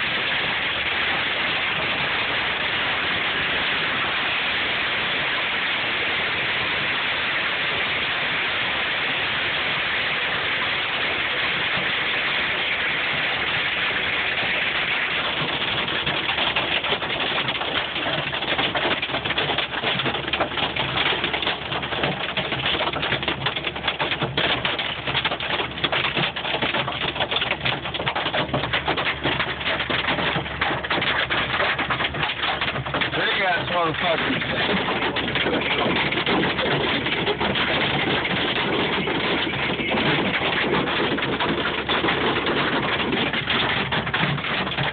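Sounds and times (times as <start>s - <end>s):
rain-like hiss: 0.0s - 23.8s, 29.1s - 37.4s
hailstones clattering: 0.0s - 44.9s.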